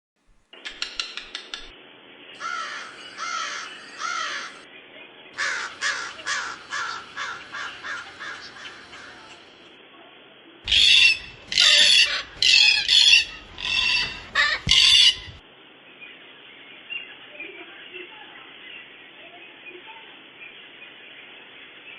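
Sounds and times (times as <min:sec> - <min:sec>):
parrot squawking: 0:05.4 - 0:09.6, 0:10.7 - 0:15.4.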